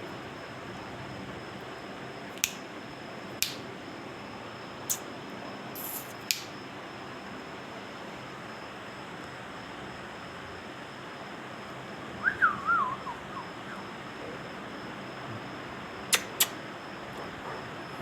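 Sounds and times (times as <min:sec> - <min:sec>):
background hiss: 0:05.8 - 0:06.5.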